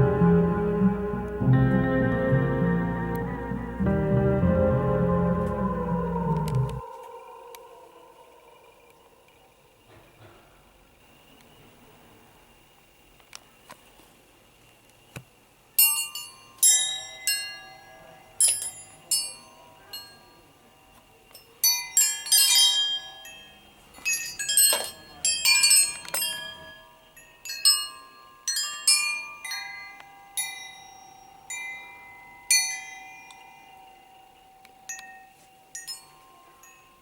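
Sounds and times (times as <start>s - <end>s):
metal wind chime ringing: 15.8s - 20.6s, 21.4s - 37.0s.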